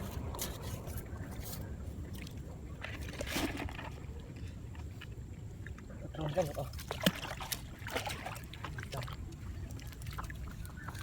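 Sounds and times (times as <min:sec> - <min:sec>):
water sloshing: 0:00.0 - 0:11.0
water splash: 0:06.5 - 0:09.2.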